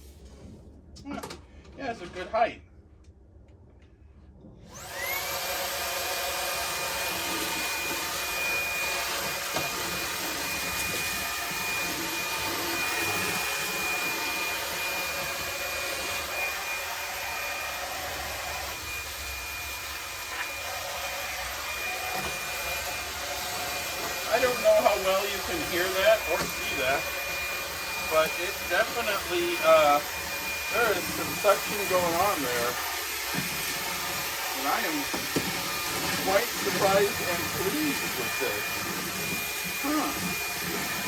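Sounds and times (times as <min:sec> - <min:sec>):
hand vacuum motor whine: 0:04.6 - 0:41.0
vacuum sucking up debris: 0:21.6 - 0:41.0.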